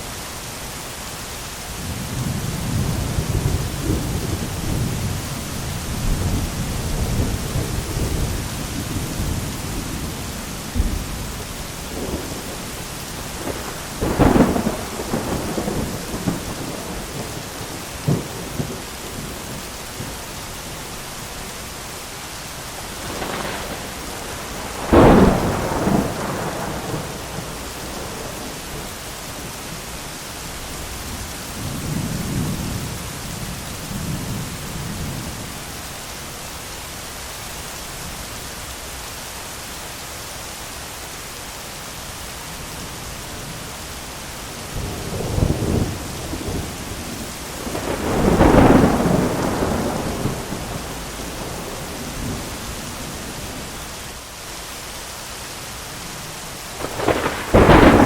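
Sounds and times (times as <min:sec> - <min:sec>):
heavy rain: 0:00.0 - 0:58.0
rolling thunder: 0:01.8 - 0:20.3, 0:22.8 - 0:29.8, 0:44.5 - 0:53.8, 0:56.7 - 0:58.0
sharp lightning cracks: 0:23.0 - 0:28.6, 0:45.1 - 0:52.5, 0:56.7 - 0:58.0.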